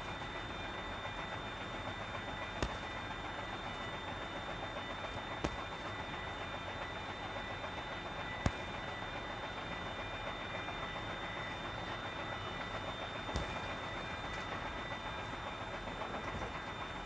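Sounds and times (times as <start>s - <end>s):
faint high whine: 0.0s - 17.0s
sharp knocks: 5.4s - 6.0s.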